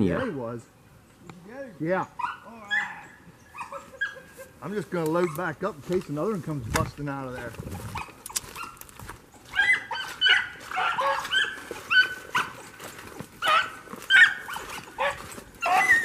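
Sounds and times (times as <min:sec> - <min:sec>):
hunting dogs baying: 0:01.9 - 0:05.9, 0:07.3 - 0:16.0.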